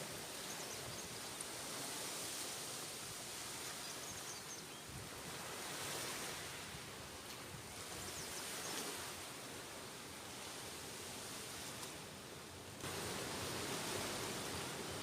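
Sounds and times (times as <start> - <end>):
sea surf: 0.0 - 15.0
wind: 0.0 - 15.0.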